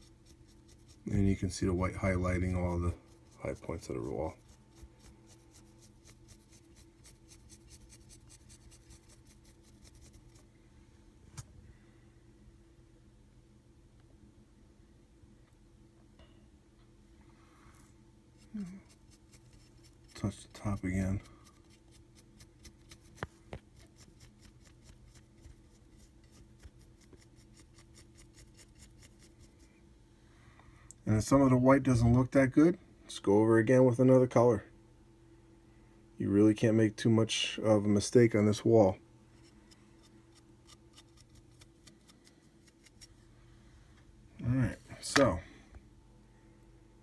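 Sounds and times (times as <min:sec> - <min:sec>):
paintbrush scratching on plaster wall: 0:00.0 - 0:10.5, 0:18.4 - 0:29.7.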